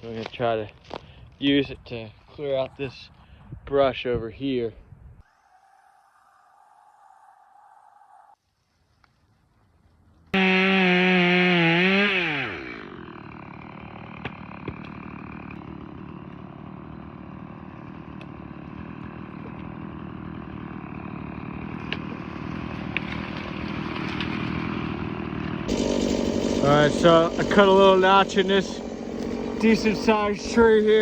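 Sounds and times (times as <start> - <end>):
electric hedge trimmer running: 10.4 - 31.0.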